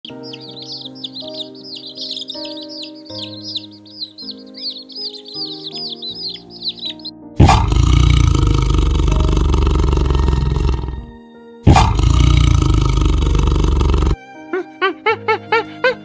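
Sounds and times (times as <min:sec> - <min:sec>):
high chick peeps: 0:00.0 - 0:10.8
soft background music: 0:00.0 - 0:16.0
tiger roaring: 0:07.4 - 0:11.0, 0:11.7 - 0:14.2.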